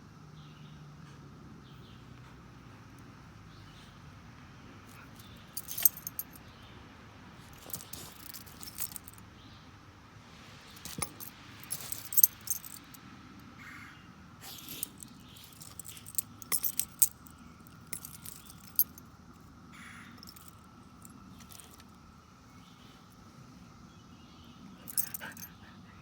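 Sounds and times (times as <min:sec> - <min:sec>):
metal dog tags jingling: 0:04.9 - 0:06.4, 0:07.4 - 0:09.2, 0:10.7 - 0:13.0, 0:14.4 - 0:19.0, 0:20.1 - 0:21.9, 0:24.8 - 0:25.6.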